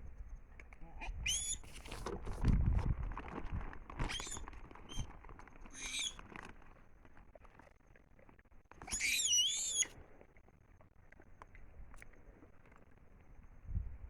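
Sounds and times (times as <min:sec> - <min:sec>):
animal high-pitched calls: 0:00.9 - 0:01.8, 0:04.0 - 0:05.1, 0:05.7 - 0:06.2, 0:08.8 - 0:09.9.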